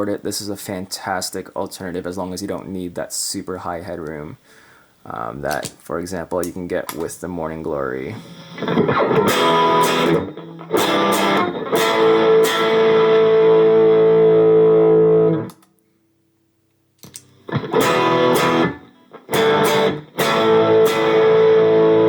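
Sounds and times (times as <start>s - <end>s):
overdriven electric guitar chords: 8.2s - 15.6s, 17.2s - 22.0s.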